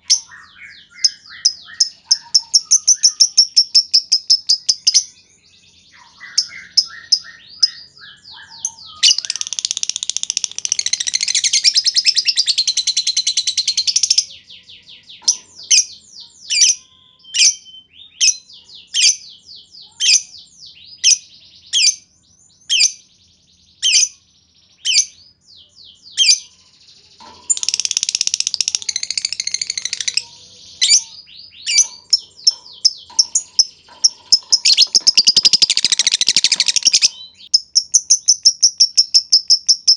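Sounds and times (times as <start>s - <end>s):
lovebird sharp chirps: 0.0s - 5.2s, 5.9s - 14.4s, 27.2s - 39.9s
lovebirds chattering trills: 0.0s - 5.2s, 5.9s - 16.8s, 26.2s - 39.9s.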